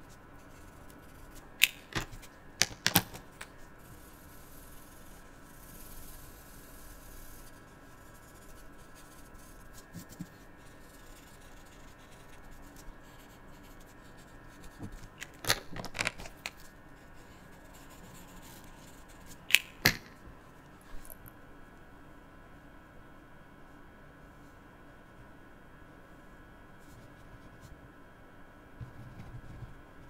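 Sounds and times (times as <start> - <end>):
marker scratching on paper: 3.8 - 15.1.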